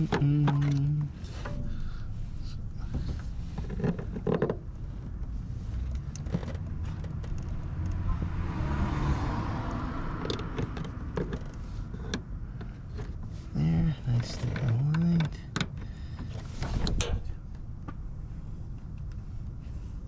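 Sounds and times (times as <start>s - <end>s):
low rumble: 16.0s - 20.0s.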